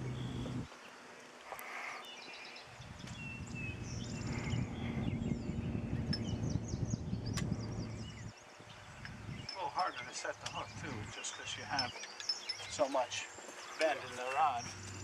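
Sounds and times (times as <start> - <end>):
low irregular rumble: 0.0 - 0.7, 2.8 - 11.7
small birds chirping: 0.0 - 15.0.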